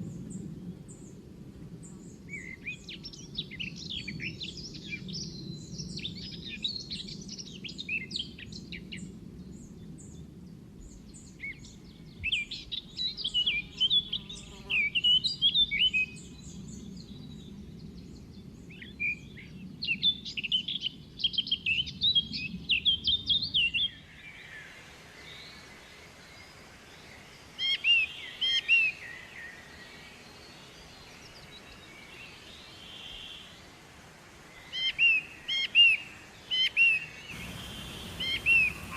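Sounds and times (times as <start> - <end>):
small birds chirping: 36.6 - 38.9.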